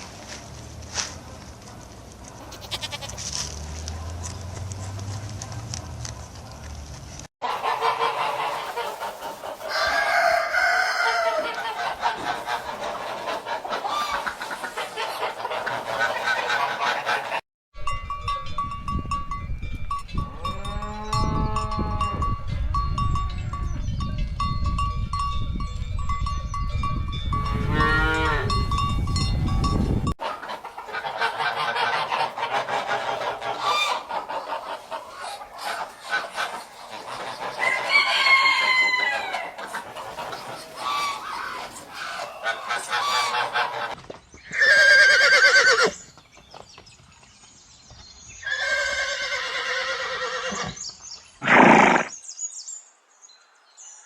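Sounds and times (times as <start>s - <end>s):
poultry calls: 7.4s - 17.4s, 30.2s - 46.0s.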